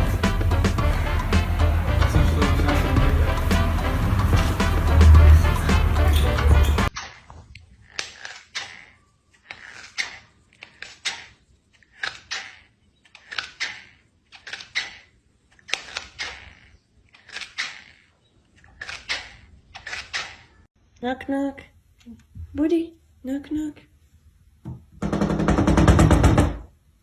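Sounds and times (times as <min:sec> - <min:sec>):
music: 0:00.0 - 0:06.9.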